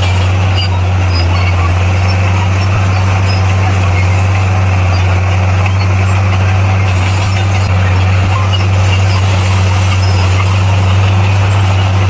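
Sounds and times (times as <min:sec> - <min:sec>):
bulldozer diesel engine running: 0:00.0 - 0:12.0.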